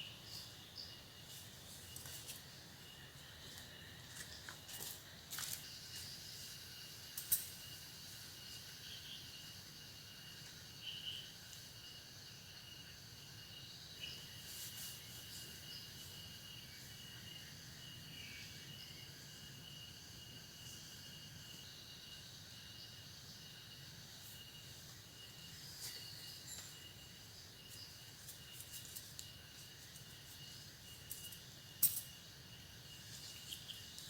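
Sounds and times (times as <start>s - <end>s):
insects trilling: 0.0s - 34.0s.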